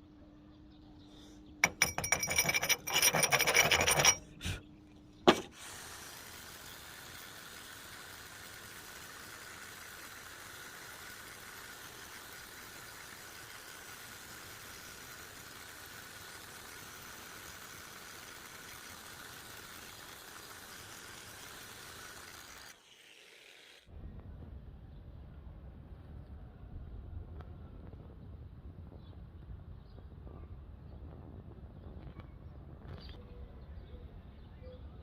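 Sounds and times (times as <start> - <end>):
crackling metalworking noise: 1.4 - 8.6.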